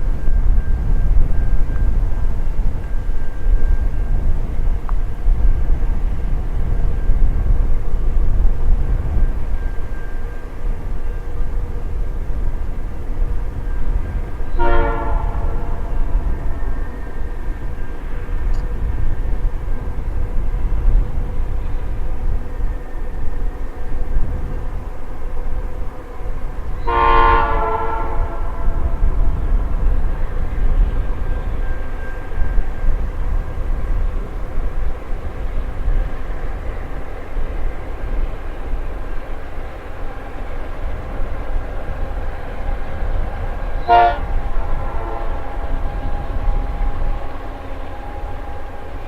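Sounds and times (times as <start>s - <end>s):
train rumble: 0.0s - 49.0s
wind: 0.0s - 49.0s
locomotive horn blast: 14.4s - 17.0s, 26.2s - 29.9s, 42.8s - 49.0s.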